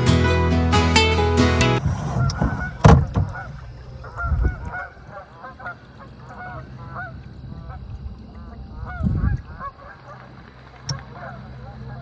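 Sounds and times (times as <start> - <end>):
geese honking: 2.2 - 10.4, 11.0 - 12.0.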